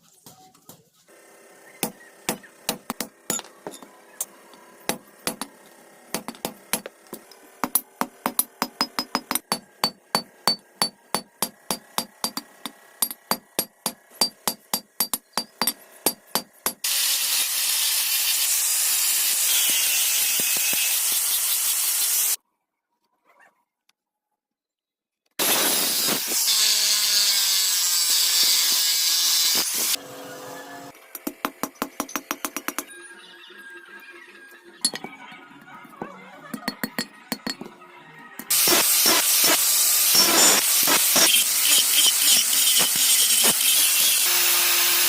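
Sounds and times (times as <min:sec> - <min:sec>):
hand hammer striking metal: 0:04.9 - 0:16.8, 0:31.1 - 0:32.9
loud steady hiss: 0:38.5 - 0:45.0.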